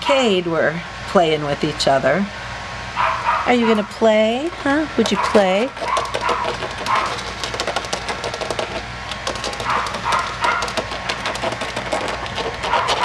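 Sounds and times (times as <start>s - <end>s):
puppies scratching and rustling: 1.1s - 2.1s, 3.0s - 13.0s
high puppy vocalisations: 2.9s - 13.0s.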